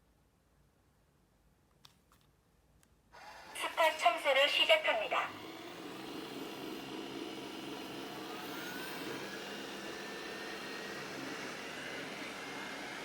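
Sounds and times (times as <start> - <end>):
robot vacuum fan and brush hum: 3.2 - 13.0.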